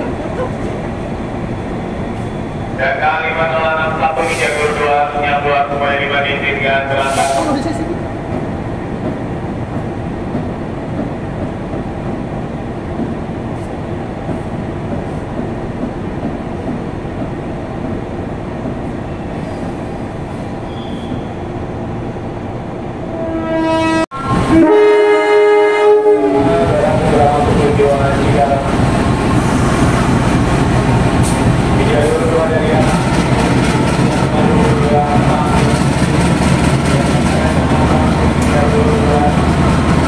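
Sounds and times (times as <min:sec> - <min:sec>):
train running with rumble: 0:00.0 - 0:21.4, 0:23.1 - 0:40.0
train horn blast: 0:23.1 - 0:26.8.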